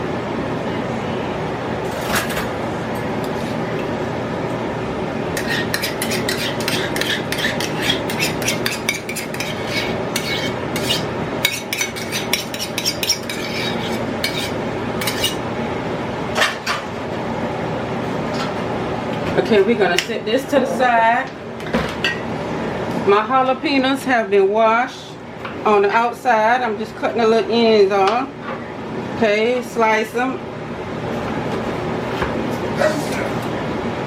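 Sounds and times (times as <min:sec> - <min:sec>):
utensil stirring in a bowl: 0:05.4 - 0:15.4.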